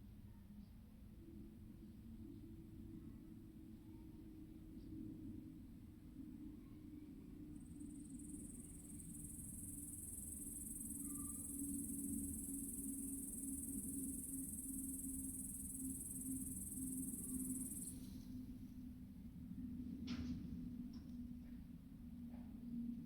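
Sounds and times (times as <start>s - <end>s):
high-pitched insect trill: 7.5s - 18.0s.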